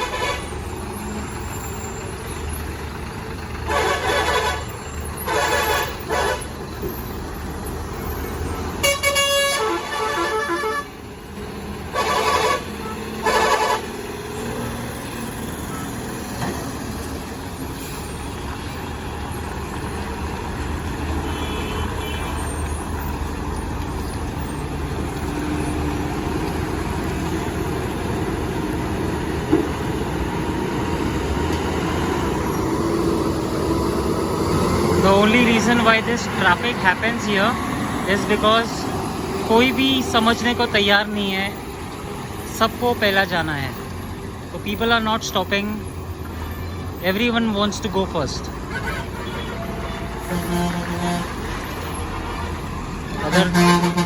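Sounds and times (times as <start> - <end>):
heavy vehicle engine: 0.0 - 54.0
road noise: 0.0 - 54.0
vehicle horn blasts: 8.8 - 10.9, 11.9 - 13.8, 21.2 - 22.4, 48.7 - 51.3, 53.3 - 54.0.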